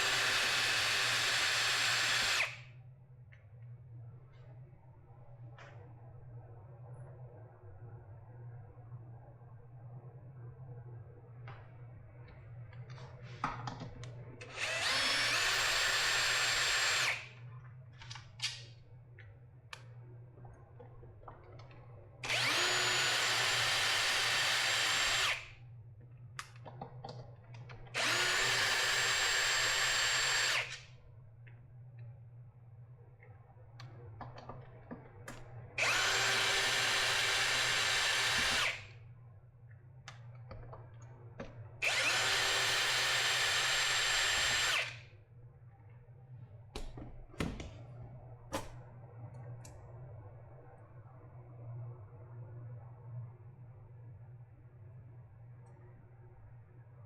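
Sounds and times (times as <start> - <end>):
electric drill running: 0.0 - 2.6, 14.4 - 17.4, 22.2 - 25.5, 28.0 - 30.9, 35.8 - 38.9, 41.8 - 45.0.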